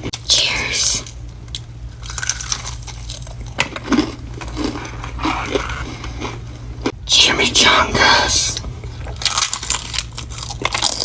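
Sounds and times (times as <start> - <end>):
crunchy chewing: 1.5 - 7.0, 9.0 - 11.0
sharp crack of biting food: 9.2 - 11.0.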